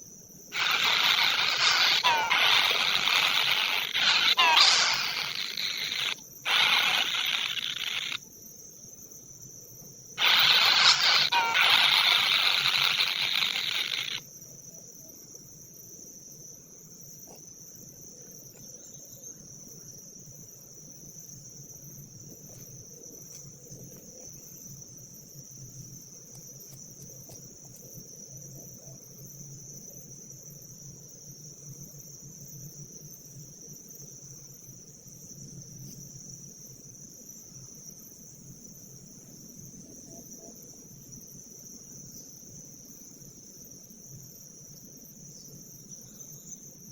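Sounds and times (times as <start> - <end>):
insect trilling: 0.5 - 8.3, 10.2 - 14.3
loud hiss: 0.6 - 8.2, 10.2 - 14.2.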